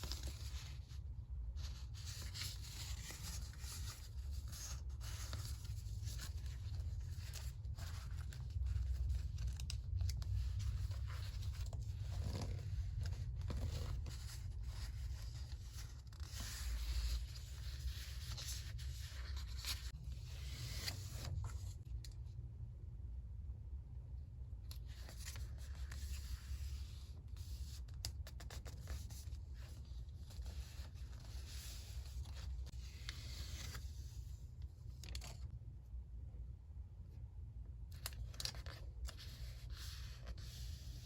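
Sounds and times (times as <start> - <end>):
paper rustling and scraping: 0.0 - 21.9, 24.7 - 35.5, 37.9 - 41.0
steady low rumble: 0.0 - 26.6.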